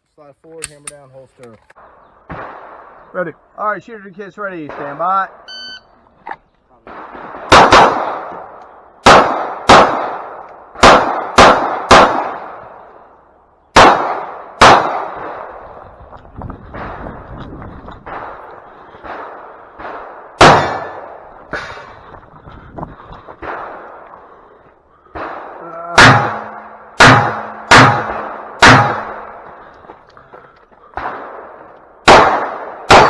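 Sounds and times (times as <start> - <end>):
loud gunshots: 1.9 - 3.3, 4.5 - 5.6, 6.8 - 13.0, 13.7 - 15.9, 18.0 - 22.0, 23.3 - 29.7, 30.9 - 33.0.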